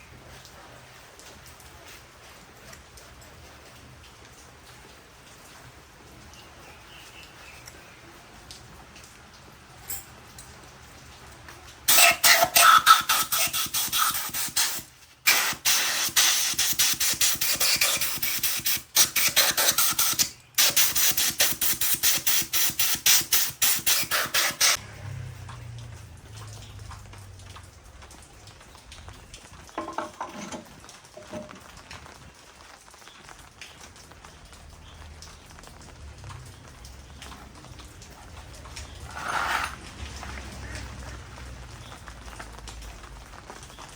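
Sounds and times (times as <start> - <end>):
pressurised spray hissing: 11.9 - 24.8.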